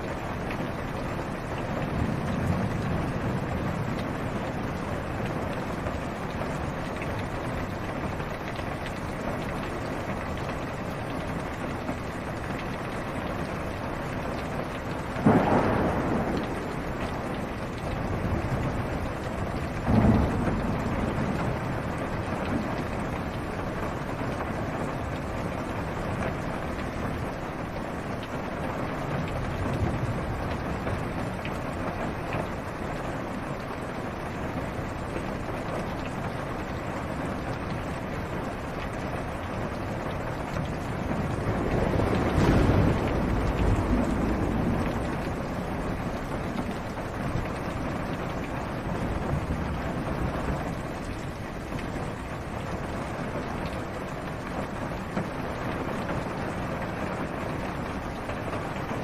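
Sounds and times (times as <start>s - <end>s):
rain on a car roof: 0.0s - 59.0s
thunder rumbling: 14.3s - 27.7s, 37.7s - 59.0s.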